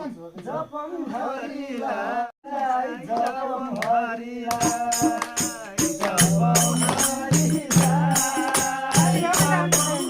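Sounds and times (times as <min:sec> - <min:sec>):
group singing: 0:00.4 - 0:10.0
jingling percussion: 0:04.5 - 0:10.0.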